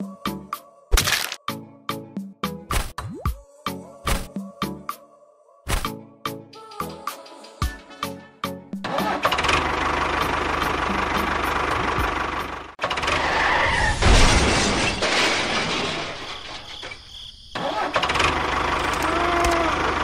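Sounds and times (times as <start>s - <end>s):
tractor engine knocking: 9.0s - 12.8s.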